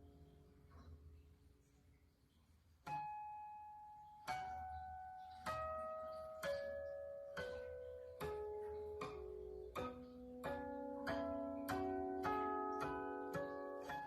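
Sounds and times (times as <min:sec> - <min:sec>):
guqin plucked notes: 0:02.9 - 0:14.0.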